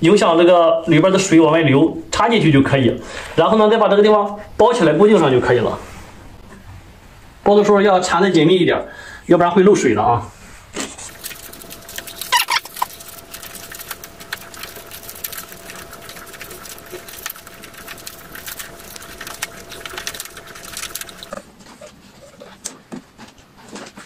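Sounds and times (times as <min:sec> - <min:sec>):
plastic tape crackling and rustling: 0:10.8 - 0:21.5.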